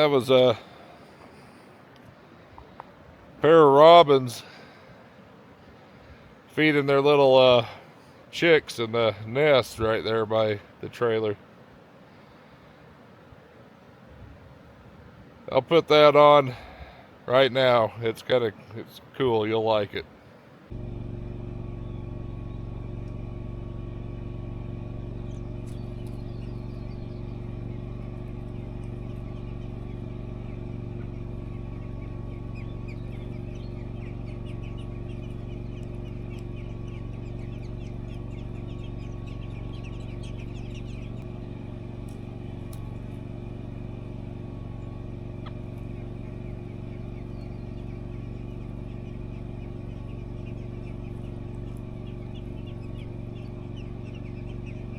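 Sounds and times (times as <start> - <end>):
machine hum: 20.7 - 54.9
high bird chirps: 21.4 - 54.9.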